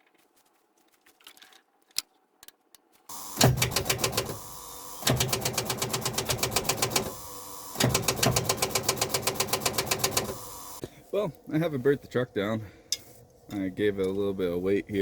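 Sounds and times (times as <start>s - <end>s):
starter cranking diesel engine: 3.1s - 10.8s.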